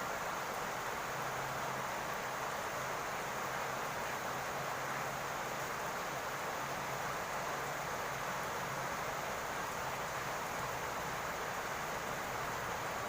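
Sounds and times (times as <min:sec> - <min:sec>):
rain on a roof: 0:00.0 - 0:13.0.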